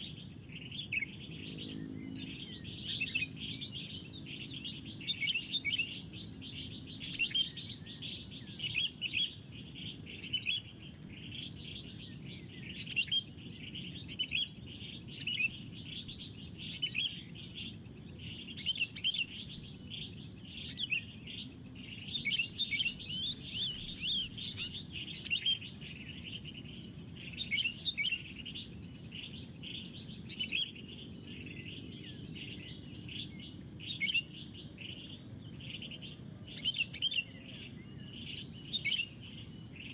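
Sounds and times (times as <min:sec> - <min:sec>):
high pulsing insect trill: 0:00.0 - 0:39.9
low steady background noise: 0:00.0 - 0:39.9
small birds chirping: 0:00.0 - 0:39.9.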